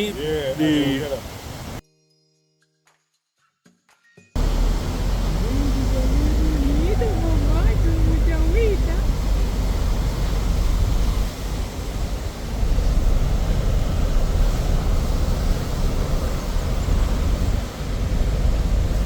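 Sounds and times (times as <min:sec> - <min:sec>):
road and wind noise: 0:00.0 - 0:01.8, 0:04.4 - 0:19.0
car driving rumble: 0:04.4 - 0:19.0.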